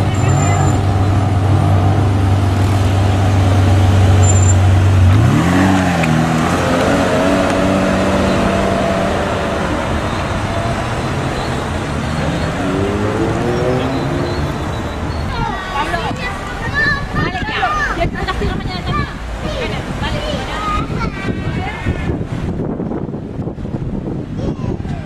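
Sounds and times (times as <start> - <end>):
car engine revving: 0.0 - 15.3.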